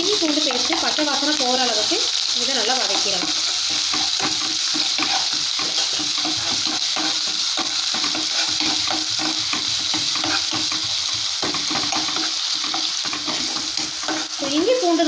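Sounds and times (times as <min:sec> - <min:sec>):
paste sizzling in hot oil: 0:00.0 - 0:15.0
spatula stirring and scraping: 0:02.4 - 0:14.8.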